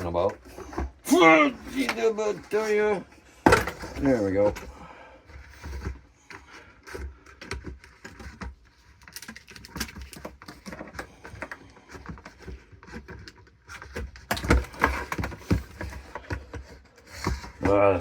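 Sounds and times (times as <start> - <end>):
plastic parts clattering: 3.4 - 18.0
hands clicking plastic parts: 5.8 - 18.0.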